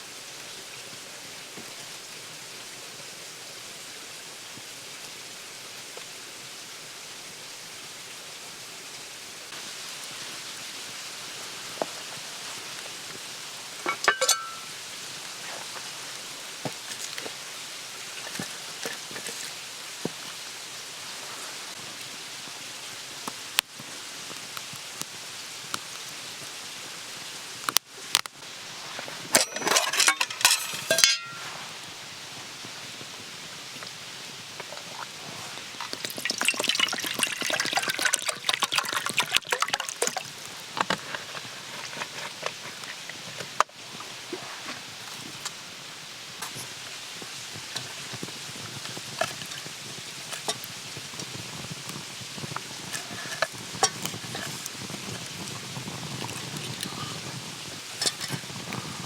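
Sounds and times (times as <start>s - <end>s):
steady hiss: 0.0s - 59.0s
metal cookware clinking: 13.9s - 14.7s, 29.4s - 31.4s.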